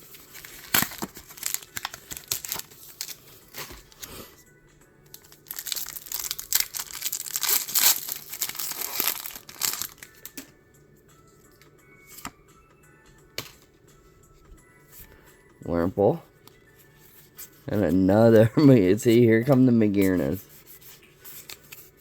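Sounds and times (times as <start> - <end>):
plastic packaging crinkling and tearing: 0.0 - 4.3, 5.1 - 10.4
faint background music: 0.0 - 22.0.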